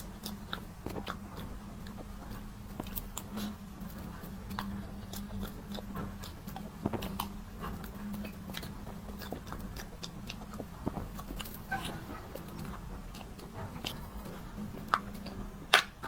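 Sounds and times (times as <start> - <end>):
close-miked eating and chewing: 0.0 - 16.0
faint low hum: 0.0 - 16.0.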